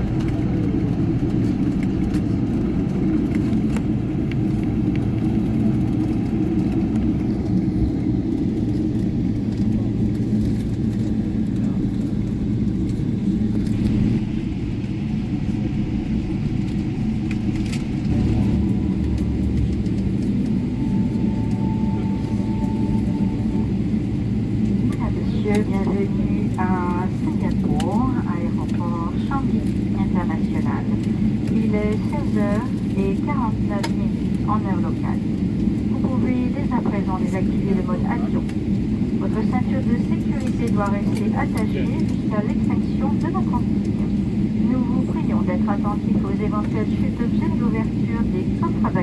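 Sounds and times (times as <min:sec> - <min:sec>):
airliner cabin rumble and hum: 0:00.0 - 0:49.0
faint thin tone: 0:20.6 - 0:23.7.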